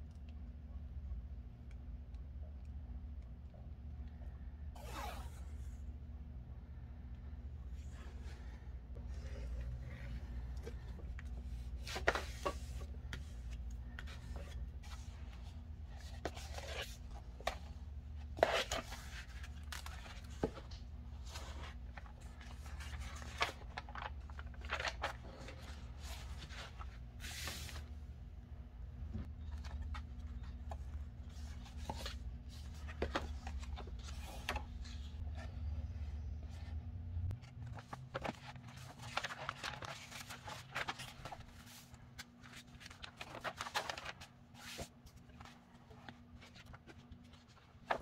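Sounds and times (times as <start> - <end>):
paper rustling and tearing: 37.7 - 44.9.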